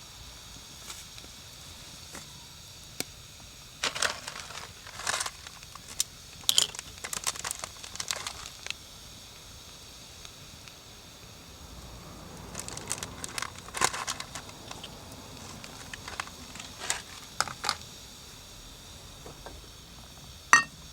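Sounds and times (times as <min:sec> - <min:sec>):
wood fire crackling and popping: 0:02.8 - 0:10.8, 0:12.3 - 0:18.4.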